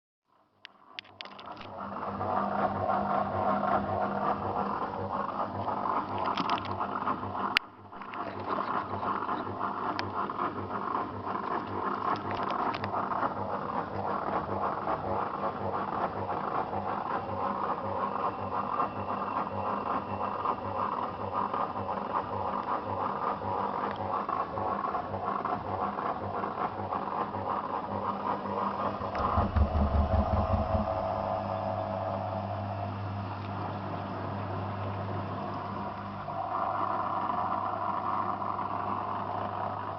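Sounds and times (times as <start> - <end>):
low hum: 27.2 - 39.9
washing machine drum turning: 28.5 - 32.8.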